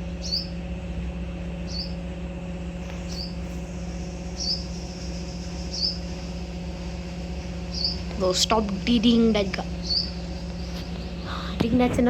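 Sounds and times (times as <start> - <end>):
steady low hum: 0.0 - 12.0
bird chirping: 0.1 - 0.6, 1.6 - 2.1, 2.9 - 8.3, 9.2 - 11.5.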